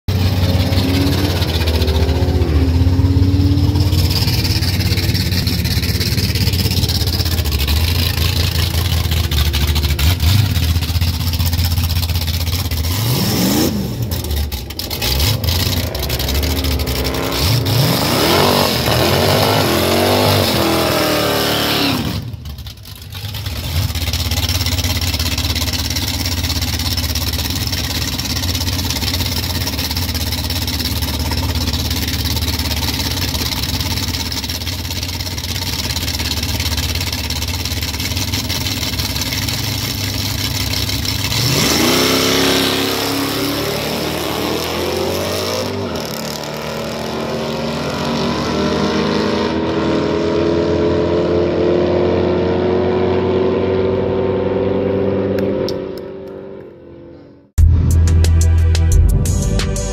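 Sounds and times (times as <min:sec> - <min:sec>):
engine revving: 0:00.0 - 0:59.9
car engines idling loudly: 0:00.1 - 0:20.8, 0:22.0 - 0:42.0.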